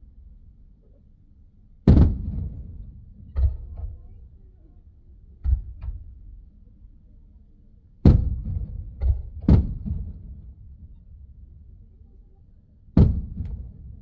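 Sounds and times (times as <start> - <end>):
fireworks booming: 8.1 - 10.4, 13.0 - 14.0.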